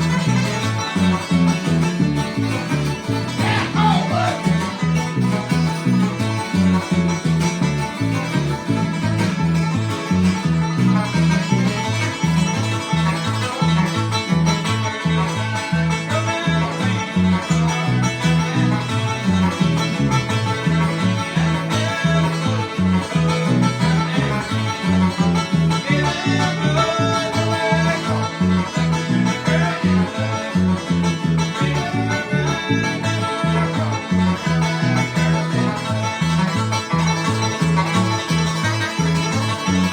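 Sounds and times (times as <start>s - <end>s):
banjo picking: 0.0s - 39.9s
bass line: 0.0s - 39.9s
strummed guitar: 0.0s - 39.9s.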